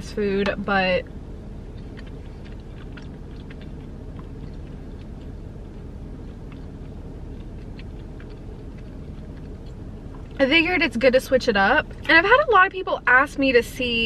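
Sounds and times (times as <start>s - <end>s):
low rumble: 0.0s - 14.0s
chewing with mouth closed: 1.4s - 10.5s
moist mouth clicks: 1.7s - 10.4s.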